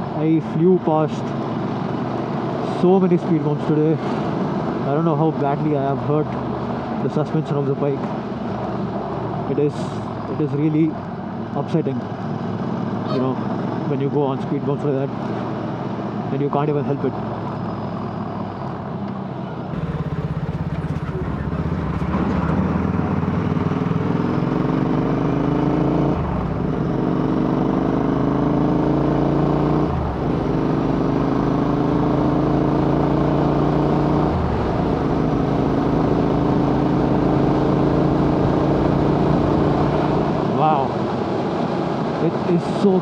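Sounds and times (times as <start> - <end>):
motorcycle engine accelerating: 19.7 - 41.4.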